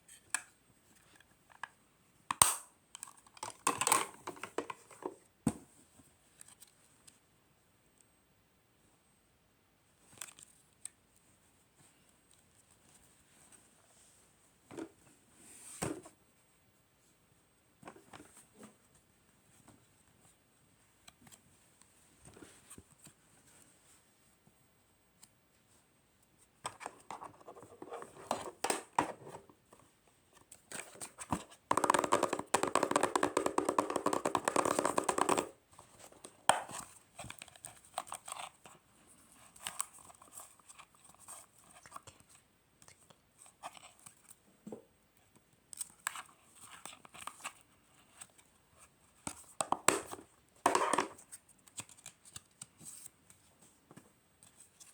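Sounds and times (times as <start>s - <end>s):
paper rustling and tapping: 31.3s - 36.8s, 49.6s - 51.2s.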